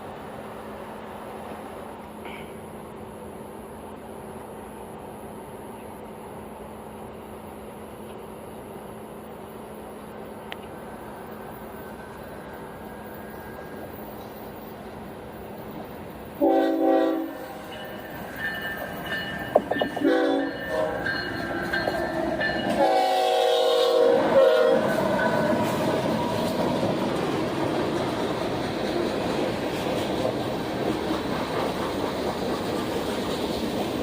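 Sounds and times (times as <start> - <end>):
train rumbling past: 0.0 - 34.0
locomotive air horn blasts: 16.4 - 17.7, 19.8 - 21.2, 22.7 - 25.0.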